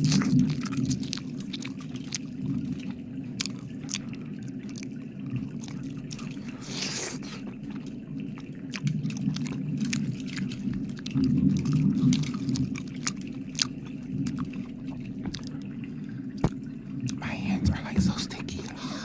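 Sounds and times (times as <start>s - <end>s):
wet mouth clicks and smacks: 3.4s - 4.9s, 12.0s - 14.6s, 15.2s - 15.6s.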